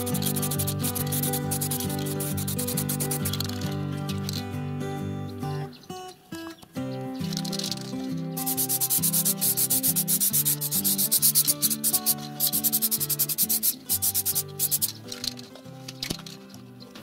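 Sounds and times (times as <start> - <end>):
spray paint can hissing: 0.0 - 3.7, 8.4 - 15.3
background music: 0.0 - 17.0.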